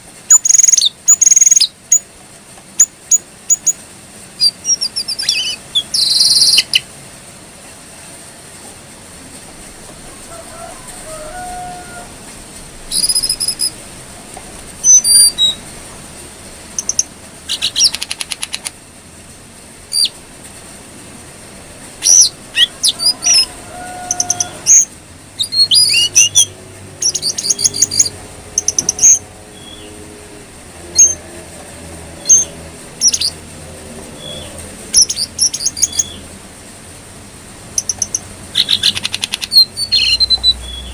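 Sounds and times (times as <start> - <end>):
songbird whistles and chirps: 4.4 - 6.8, 12.9 - 13.8, 37.8 - 40.9.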